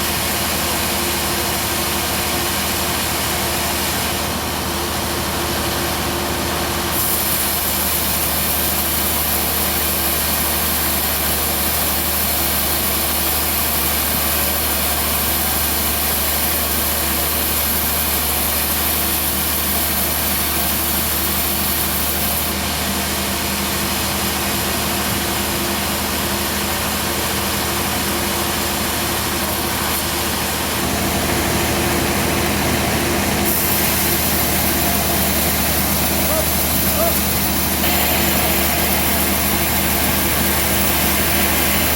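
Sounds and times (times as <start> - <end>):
band sawmill engine hum: 0.0 - 41.9
high hiss: 33.4 - 41.9.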